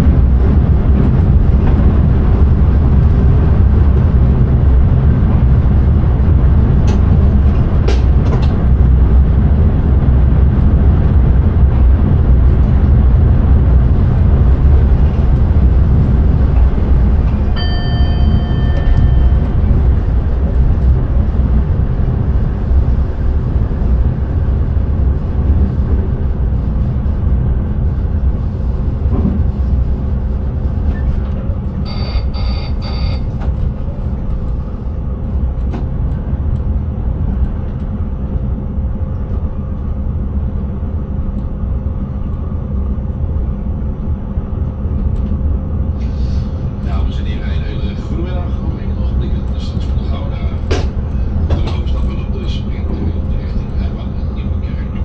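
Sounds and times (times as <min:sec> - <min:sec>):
train wheels rumbling on rails: 0:00.0 - 0:55.0
short electronic tone: 0:17.6 - 0:19.6, 0:31.8 - 0:33.4.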